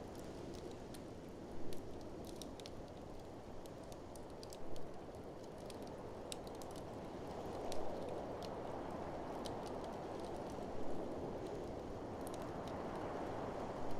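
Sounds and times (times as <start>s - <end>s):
wood fire crackling and popping: 0.0s - 13.9s.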